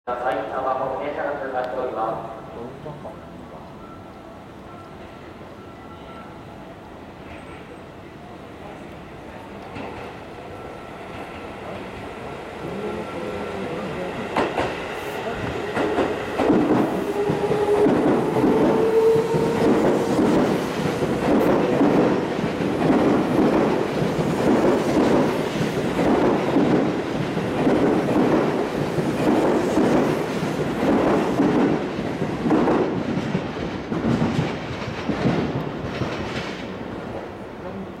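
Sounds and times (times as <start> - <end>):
electric train passing: 0.1 - 38.0
train motor whine: 16.6 - 21.2.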